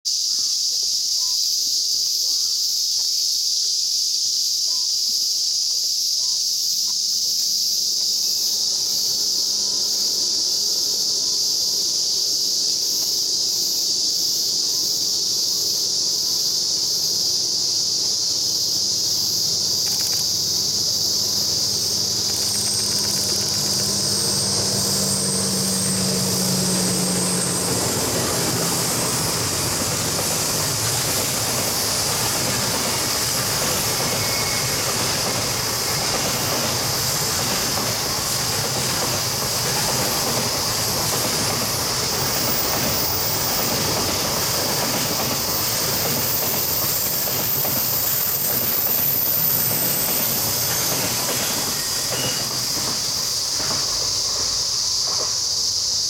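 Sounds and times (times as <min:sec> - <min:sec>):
high insect drone: 0:00.1 - 0:56.0
train wheels rumbling on rails: 0:07.2 - 0:56.0
locomotive engine hum: 0:08.3 - 0:55.6.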